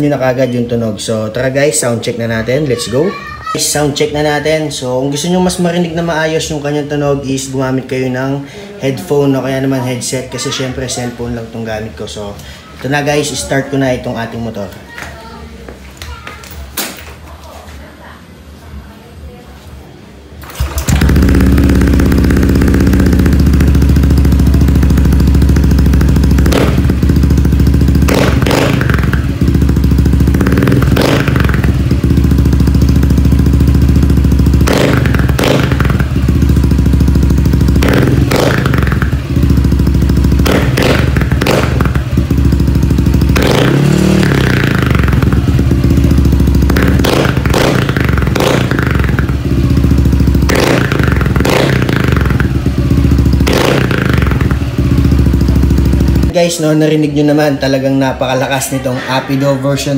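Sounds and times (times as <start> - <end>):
scooter engine idling and revving: 20.4 - 59.9.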